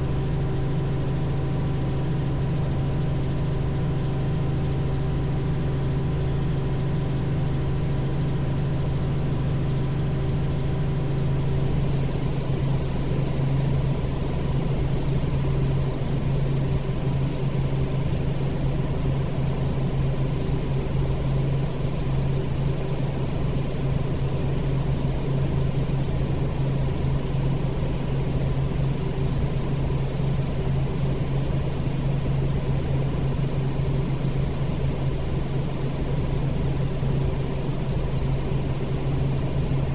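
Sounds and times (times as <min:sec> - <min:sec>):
helicopter engine and rotors: 0:00.0 - 0:39.9.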